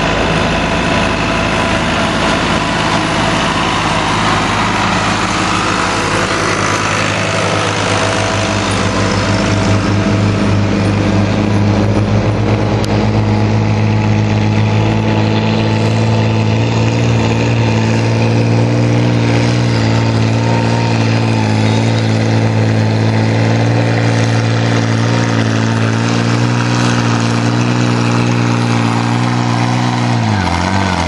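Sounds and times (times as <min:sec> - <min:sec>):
tractor engine running steadily: 0:00.0 - 0:31.0.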